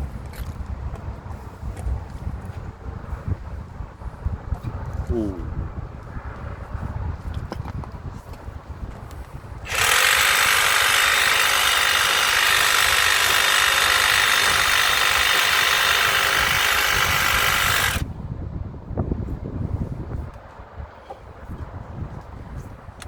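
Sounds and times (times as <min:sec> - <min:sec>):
power tool running: 0:09.6 - 0:18.1.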